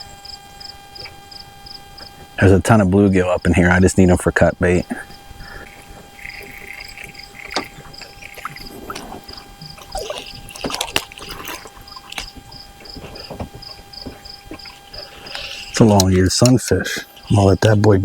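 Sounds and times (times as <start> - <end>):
insect chirping: 0.0 - 18.0
knocks and rustles of fish: 5.2 - 16.0.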